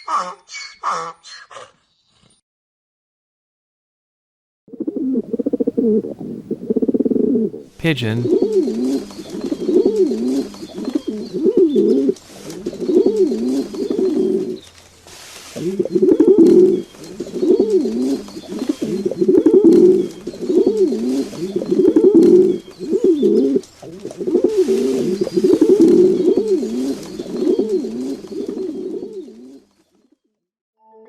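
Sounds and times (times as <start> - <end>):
pigeons cooing: 15.6 - 29.6.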